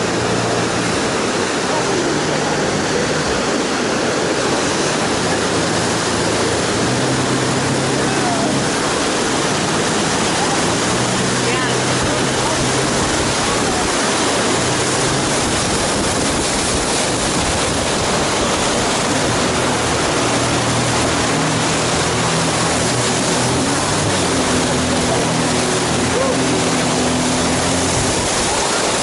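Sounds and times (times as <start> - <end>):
outboard motor drone: 0.0 - 29.0
whitewater rapids roaring: 0.0 - 29.0.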